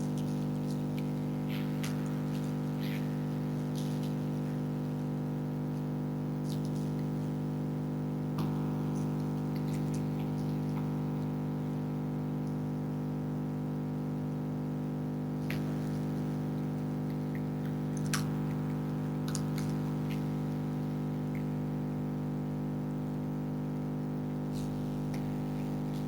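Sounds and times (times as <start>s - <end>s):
freezer electrical hum: 0.0s - 26.0s.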